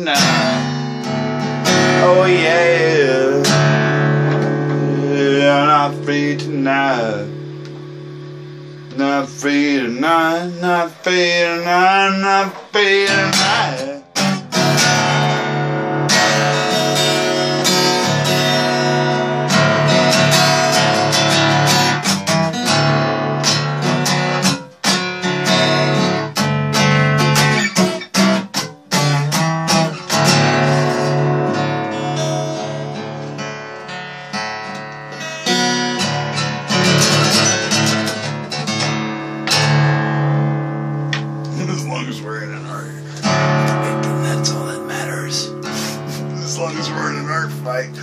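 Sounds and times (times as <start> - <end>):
acoustic guitar strumming: 0.0 - 48.0.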